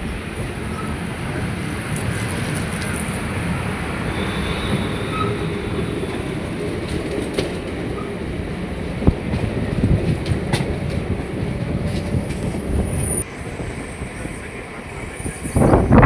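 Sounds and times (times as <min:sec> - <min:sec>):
train coaches rumbling and rattling: 0:00.0 - 0:16.0
faint high squeal: 0:04.1 - 0:06.1, 0:11.9 - 0:16.0.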